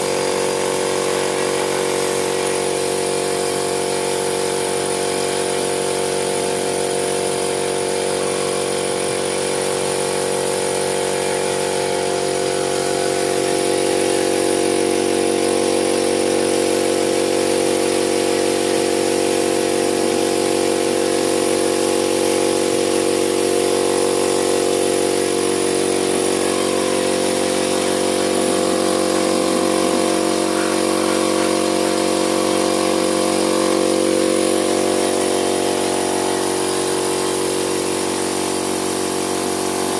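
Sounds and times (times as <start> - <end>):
motor humming: 7.7 - 17.6, 22.6 - 38.5.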